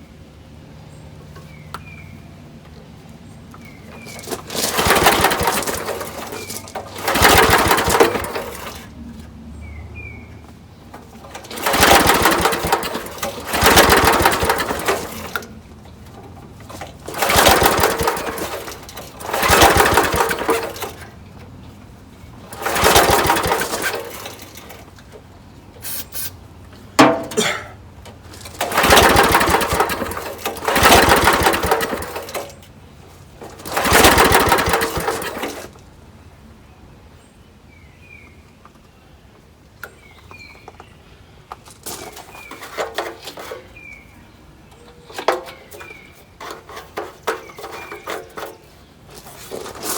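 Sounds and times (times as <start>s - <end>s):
small engine pull-start chugging: 3.6s - 9.0s, 10.9s - 21.7s, 22.3s - 25.2s, 28.3s - 35.8s, 41.8s - 44.1s, 44.7s - 49.9s.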